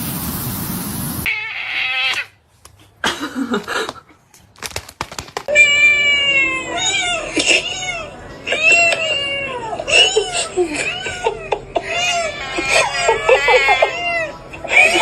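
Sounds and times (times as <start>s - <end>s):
cat meowing: 12.0s - 14.2s.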